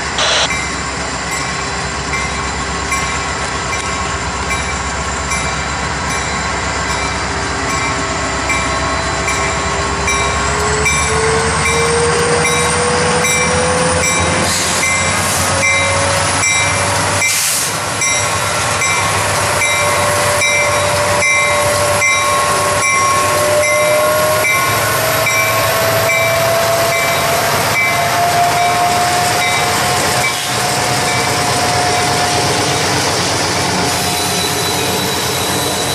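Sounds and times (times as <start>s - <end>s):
freight train rumbling: 0.0s - 35.9s
rising whine: 0.1s - 0.6s.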